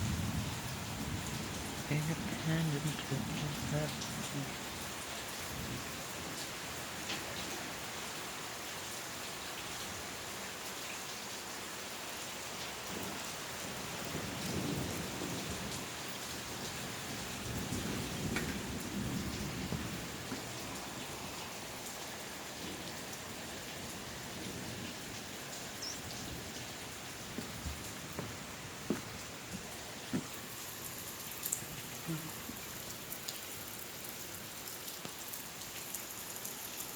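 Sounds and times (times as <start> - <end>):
heavy rain: 0.0 - 36.9
thunder rumbling: 16.6 - 21.3, 23.9 - 30.4.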